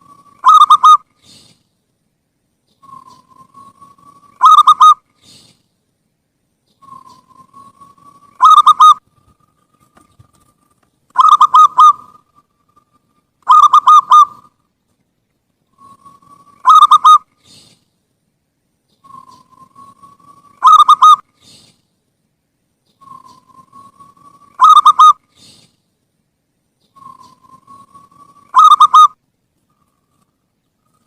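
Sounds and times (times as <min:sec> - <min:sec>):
dove cooing: 0:00.0 - 0:01.4, 0:02.8 - 0:05.4, 0:06.8 - 0:12.4, 0:13.4 - 0:14.5, 0:15.8 - 0:17.6, 0:19.0 - 0:21.6, 0:23.0 - 0:25.6, 0:27.0 - 0:29.2.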